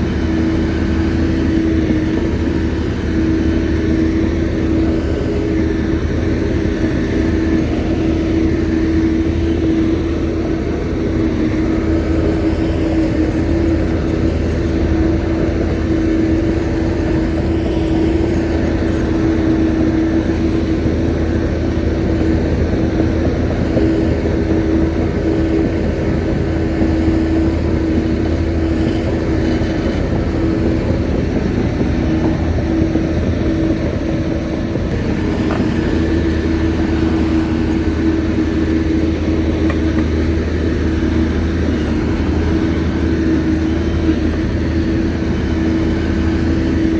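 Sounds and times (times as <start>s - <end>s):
bulldozer diesel engine running: 0.0s - 46.9s
engine whine: 0.0s - 46.9s.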